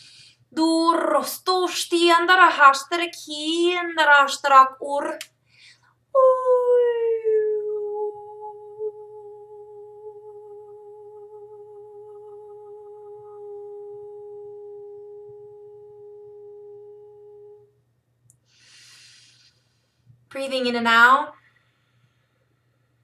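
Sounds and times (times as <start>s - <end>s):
woman humming a long note: 6.3s - 17.8s.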